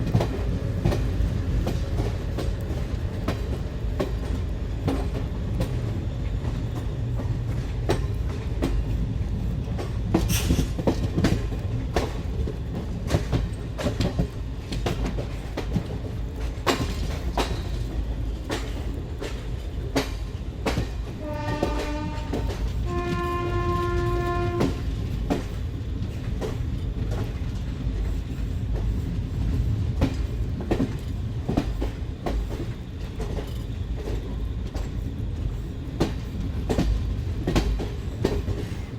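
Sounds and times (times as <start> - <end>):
train rolling with wheel clacks: 0.0 - 38.9
train horn: 21.2 - 24.9.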